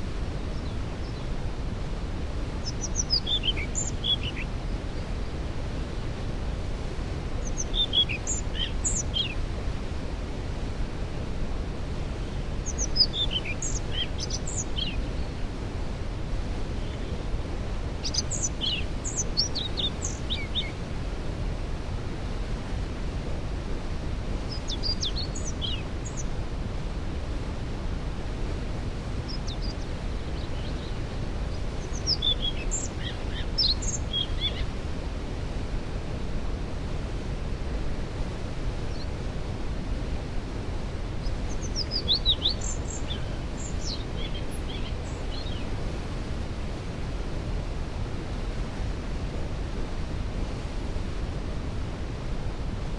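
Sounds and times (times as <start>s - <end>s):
waterfall roaring: 0.0s - 52.9s
songbird chirping: 2.4s - 6.2s, 7.2s - 9.8s, 12.0s - 15.5s, 17.9s - 20.8s, 24.4s - 26.4s, 29.2s - 34.8s, 41.1s - 46.8s.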